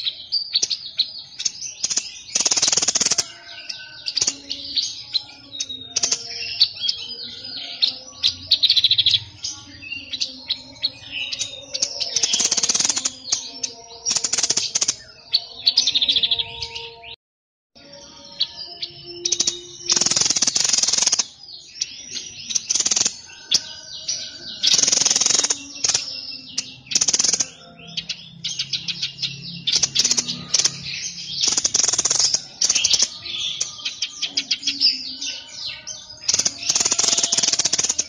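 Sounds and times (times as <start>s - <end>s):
songbird chattering: 19.1s - 38.0s.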